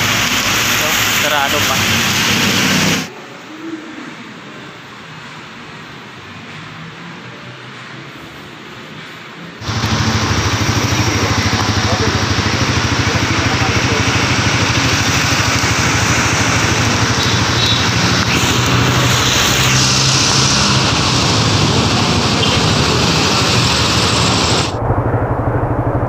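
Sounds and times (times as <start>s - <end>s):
steady hiss: 9.6s - 24.7s
motorcycle engine idling: 9.6s - 24.8s.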